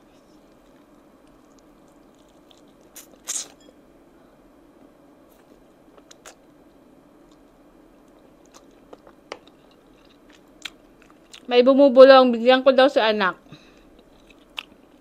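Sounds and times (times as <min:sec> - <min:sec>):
biting and chewing mouth sounds: 0:00.0 - 0:03.7, 0:05.4 - 0:06.5, 0:07.2 - 0:11.5, 0:13.9 - 0:15.0
faint steady hum: 0:00.0 - 0:15.0.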